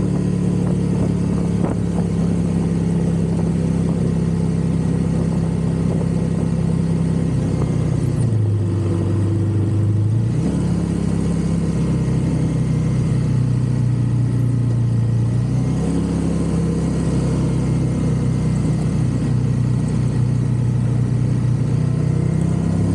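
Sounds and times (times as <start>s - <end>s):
motorcycle engine running: 0.0s - 22.9s.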